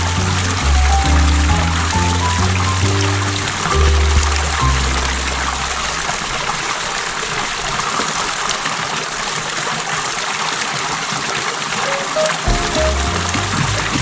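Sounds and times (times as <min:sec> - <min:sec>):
background music: 0:00.0 - 0:05.7, 0:11.9 - 0:14.0
running water rushing: 0:00.0 - 0:14.0.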